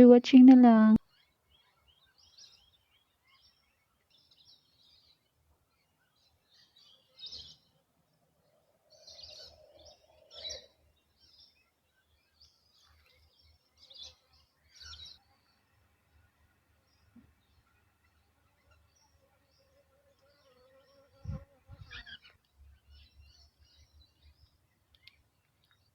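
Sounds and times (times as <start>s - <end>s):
birds chirping: 0.0s - 15.6s.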